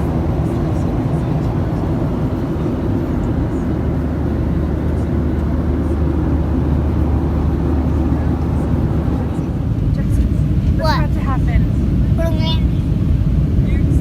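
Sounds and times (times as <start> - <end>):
airliner cabin drone: 0.0 - 14.0.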